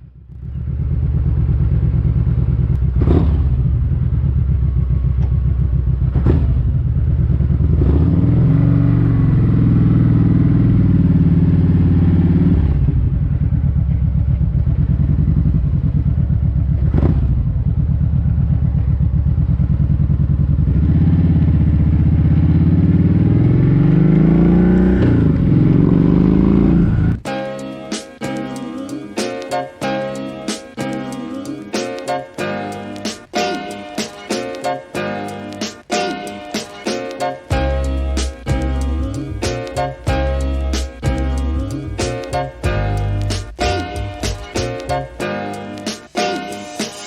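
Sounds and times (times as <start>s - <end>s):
motorcycle engine accelerating: 0.0s - 27.3s, 37.5s - 45.2s
sharp clicks: 42.0s - 47.0s.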